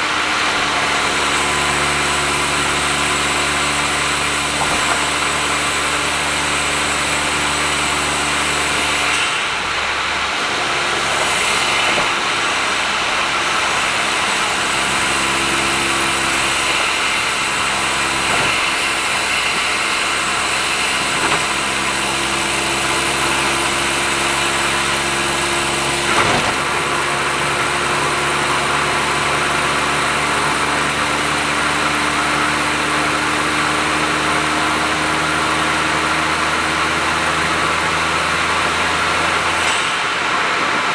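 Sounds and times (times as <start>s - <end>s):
tyre and road noise: 0.0s - 30.6s
car engine cruising: 0.0s - 40.9s.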